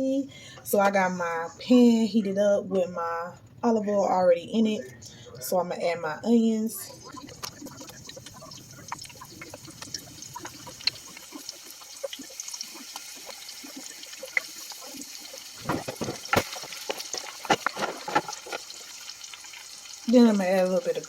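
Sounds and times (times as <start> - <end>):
onions sizzling in a frying pan: 7.9 - 21.0.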